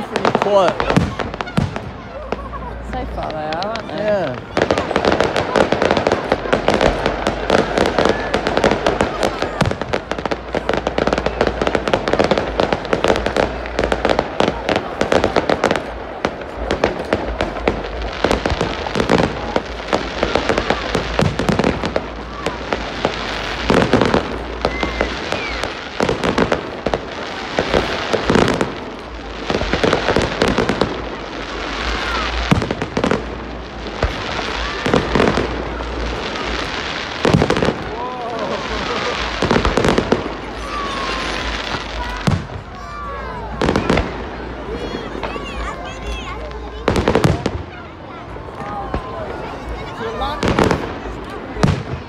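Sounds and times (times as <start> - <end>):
fireworks bangs and crackling: 0.0 - 52.0
firework whistles: 18.3 - 28.6.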